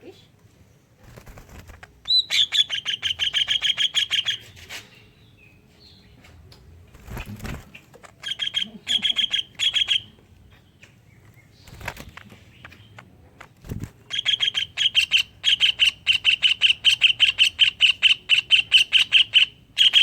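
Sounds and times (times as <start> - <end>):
bird singing fast trills: 2.1 - 4.5, 7.1 - 10.2, 14.1 - 20.0.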